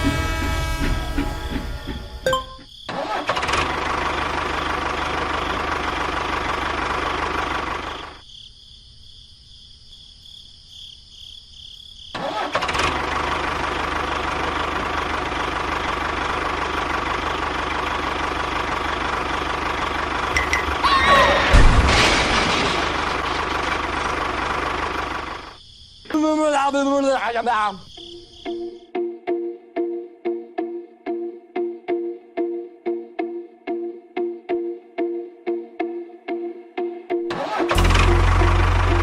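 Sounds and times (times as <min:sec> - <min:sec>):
tractor engine running: 0:00.0 - 0:08.2, 0:12.2 - 0:25.6, 0:37.3 - 0:39.0.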